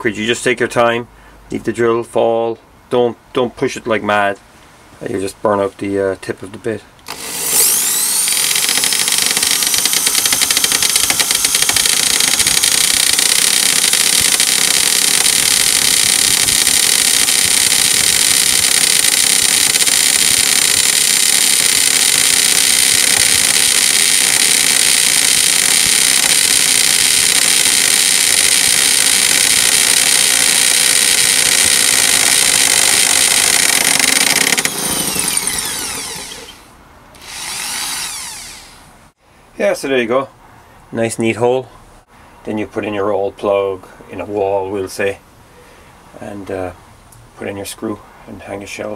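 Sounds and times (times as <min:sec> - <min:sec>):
hammer drill whining: 0:07.1 - 0:38.9.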